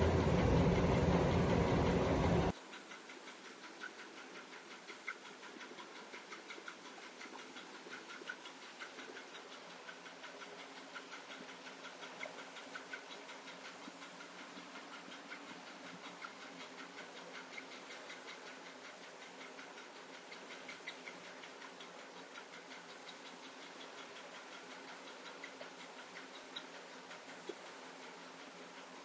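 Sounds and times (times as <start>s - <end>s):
low steady hum: 0.0s - 2.5s
faint rapid clicking: 0.0s - 29.0s.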